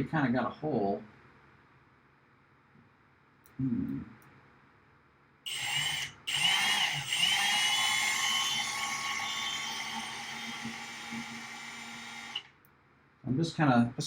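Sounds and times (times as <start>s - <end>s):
power drill whirring: 5.5s - 12.6s.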